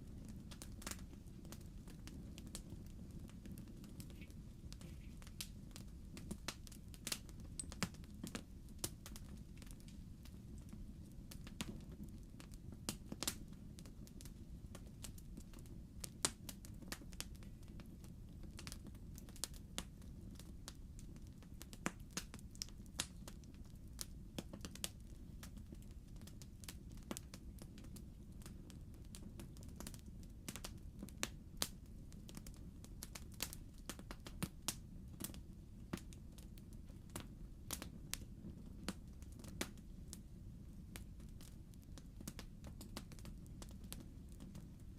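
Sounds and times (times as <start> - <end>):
fire crackling and popping: 0.0 - 44.9
low rumble of fire: 0.0 - 44.9.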